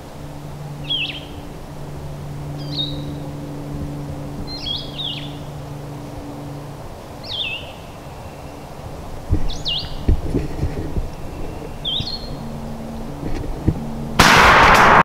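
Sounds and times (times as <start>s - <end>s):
low steady hum: 0.0s - 15.0s
songbird whistle call: 0.8s - 1.3s, 2.6s - 3.2s, 7.2s - 8.7s, 9.5s - 10.1s, 11.3s - 12.4s.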